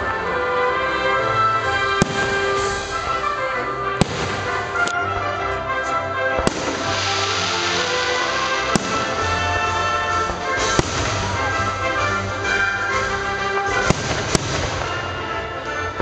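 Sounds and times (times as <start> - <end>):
music with held notes: 0.0 - 16.0
firework shells bursting: 2.0 - 3.2, 6.4 - 12.6, 13.7 - 16.0.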